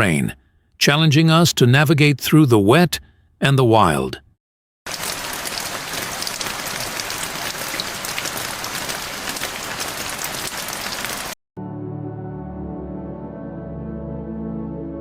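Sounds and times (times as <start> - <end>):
heavy rain falling: 4.9 - 11.4
soft ambient music: 11.6 - 15.0.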